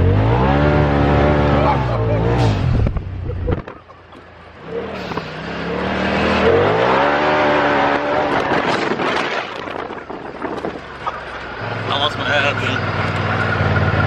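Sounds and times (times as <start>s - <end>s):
engine accelerating: 0.0s - 3.6s, 4.5s - 14.0s
rough rushing noise: 4.9s - 10.8s.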